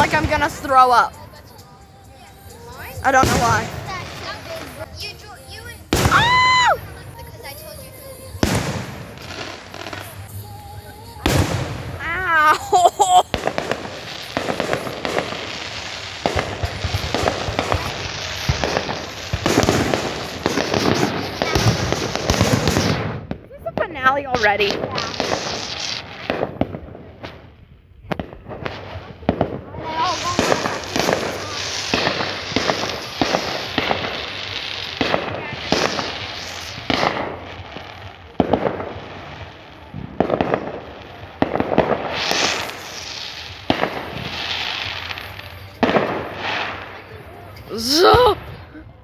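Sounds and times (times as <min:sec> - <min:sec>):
fireworks bangs and crackling: 0:00.0 - 0:49.0.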